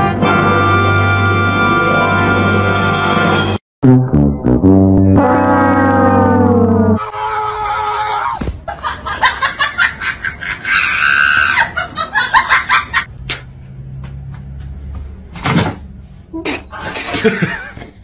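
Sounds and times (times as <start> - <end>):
drawn-out high-pitched sound: 3.8 - 7.2
people laughing: 8.6 - 13.1, 16.8 - 17.9.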